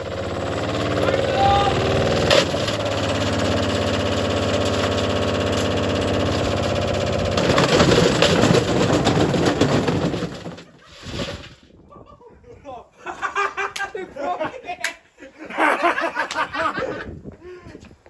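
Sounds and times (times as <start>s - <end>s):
washing machine motor hum: 0.0s - 7.6s
rattling and banging: 0.1s - 11.6s.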